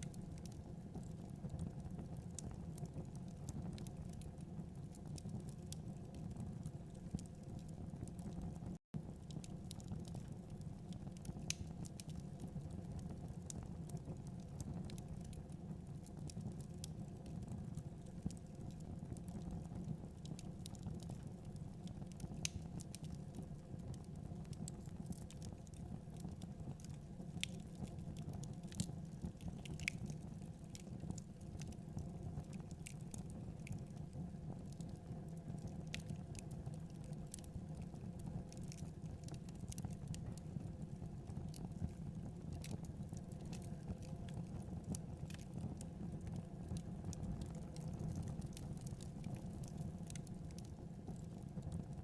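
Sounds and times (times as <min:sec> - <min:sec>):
wood fire crackling: 0:00.0 - 0:52.0.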